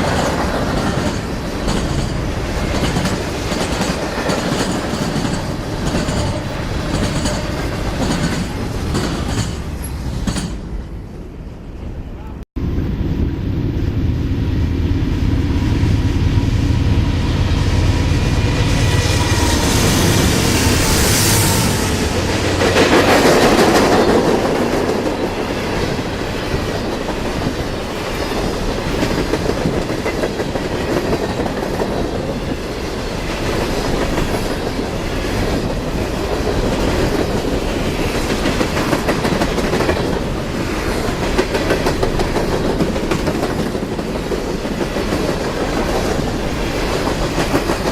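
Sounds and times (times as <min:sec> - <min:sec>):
wheels clickety-clack on rail joints: 0:00.0 - 0:10.8, 0:22.1 - 0:47.9
train cars rumbling: 0:00.0 - 0:47.9.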